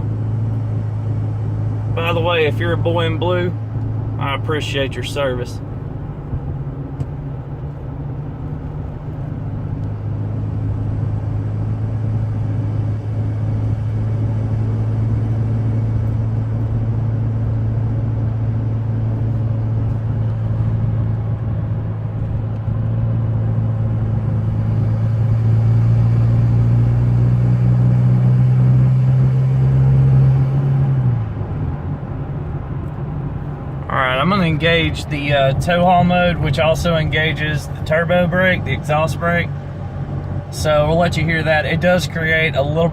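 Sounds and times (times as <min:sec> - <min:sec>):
diesel engine drone: 0:00.0 - 0:42.9.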